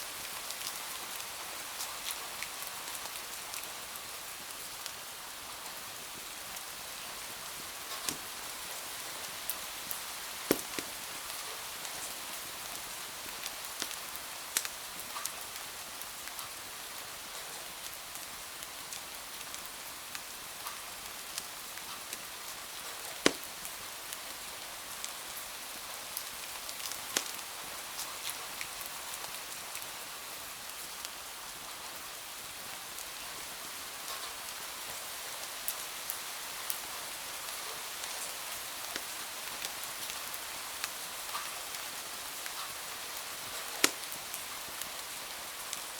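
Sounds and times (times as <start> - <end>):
rain hiss: 0.0 - 45.9
wood fire crackling: 6.1 - 15.0, 21.4 - 24.4, 26.2 - 28.9, 37.4 - 45.9.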